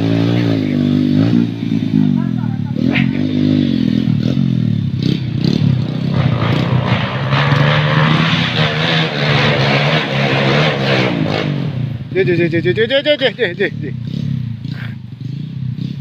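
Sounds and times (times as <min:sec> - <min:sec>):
motorcycle engine running: 0:00.0 - 0:09.1, 0:10.1 - 0:16.0.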